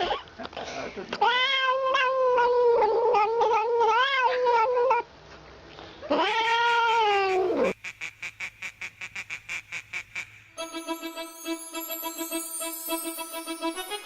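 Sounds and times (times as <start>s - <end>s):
cat yowling: 1.2s - 5.0s, 6.1s - 7.7s.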